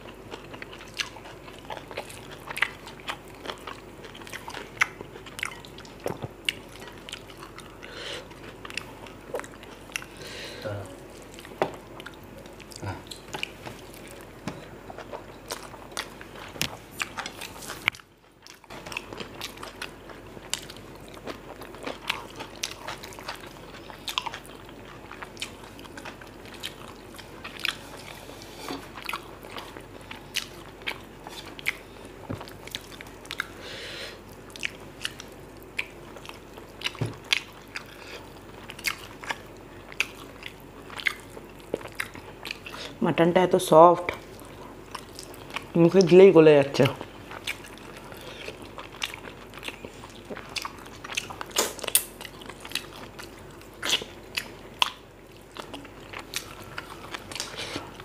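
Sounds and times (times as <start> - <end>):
wet chewing: 0.3 - 10.2, 11.1 - 33.6, 34.3 - 43.0, 44.0 - 58.0
lip smacks: 50.3 - 52.8.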